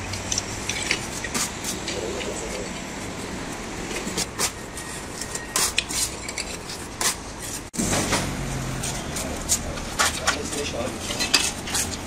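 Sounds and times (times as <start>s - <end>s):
metal tools scraping stone: 4.4s - 7.7s, 8.8s - 12.0s
metal tools clinking on stone: 10.1s - 11.9s.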